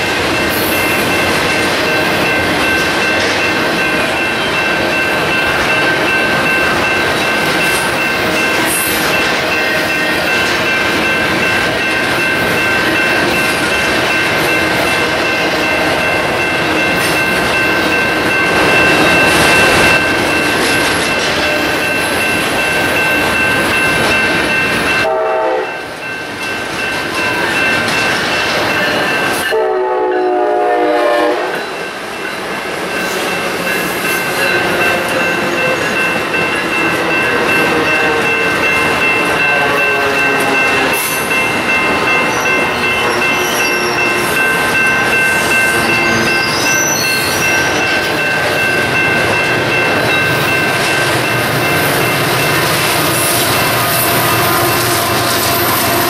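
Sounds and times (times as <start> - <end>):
train rumble and wheel clatter: 0.0 - 56.0
train horn blasts: 25.0 - 25.8, 29.5 - 31.6, 39.5 - 41.0.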